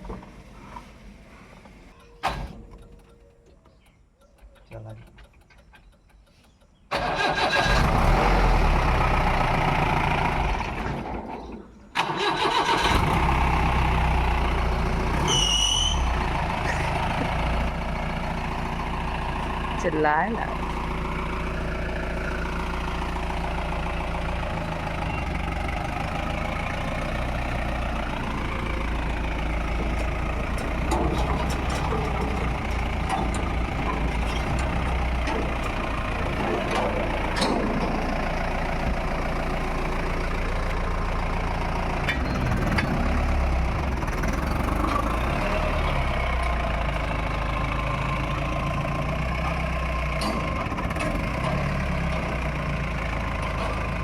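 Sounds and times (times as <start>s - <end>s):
pickup truck engine humming: 12.2s - 54.0s.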